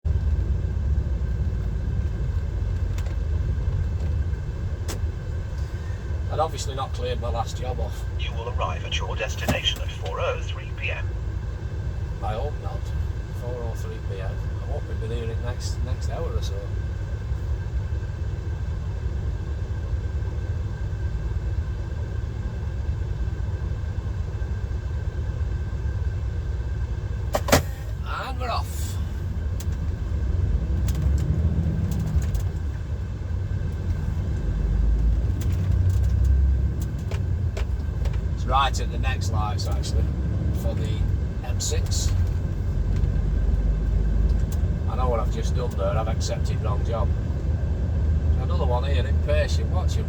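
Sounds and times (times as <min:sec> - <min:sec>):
lorry diesel engine idling: 0:00.1 - 0:30.7
thin steady whine: 0:05.2 - 0:30.1.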